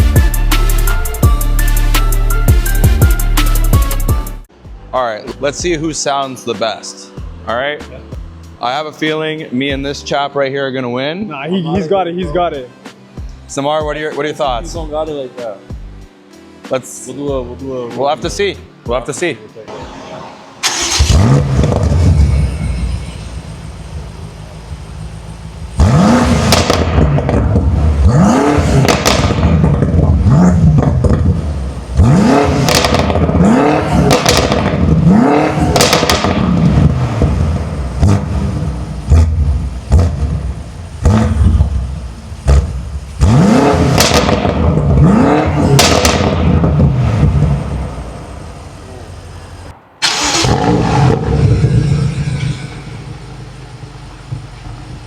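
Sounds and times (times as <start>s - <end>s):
engine starting: 19.7s - 23.6s, 50.0s - 53.8s
car engine idling and revving: 19.7s - 55.0s.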